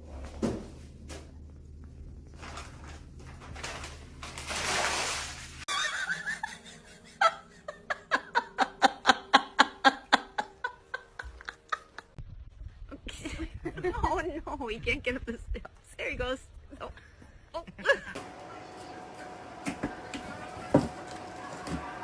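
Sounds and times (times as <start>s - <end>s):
person laughing hard: 5.7s - 12.1s.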